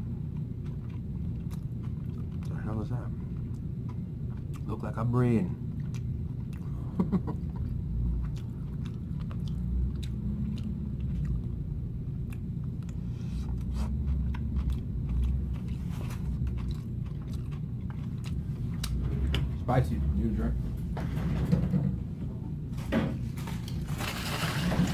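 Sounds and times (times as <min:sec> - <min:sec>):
person chewing food: 0:00.0 - 0:05.0, 0:05.6 - 0:19.6
low hum: 0:00.0 - 0:24.9.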